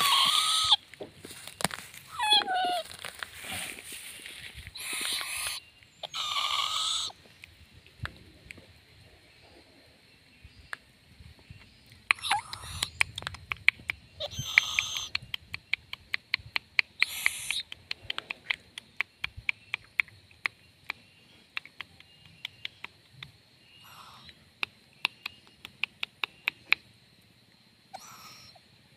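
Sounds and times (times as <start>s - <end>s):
owl hissing screeches: 0.0s - 0.8s, 4.7s - 7.2s, 14.2s - 15.1s, 17.0s - 17.6s, 23.8s - 24.3s, 28.0s - 28.6s
sharp clicks: 11.9s - 23.4s.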